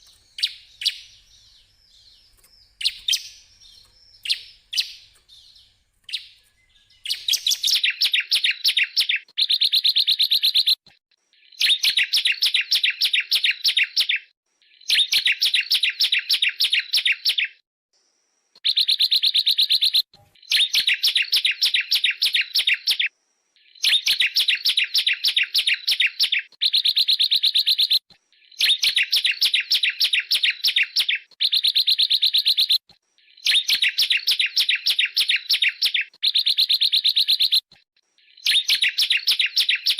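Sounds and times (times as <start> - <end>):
bird singing rapid trills: 0.0 - 10.8, 18.6 - 39.9.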